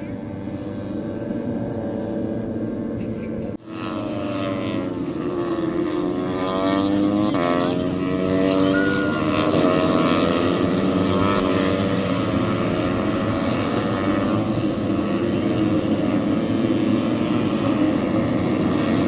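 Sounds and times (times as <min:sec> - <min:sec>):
racing motorcycle engines revving: 0:00.0 - 0:19.0.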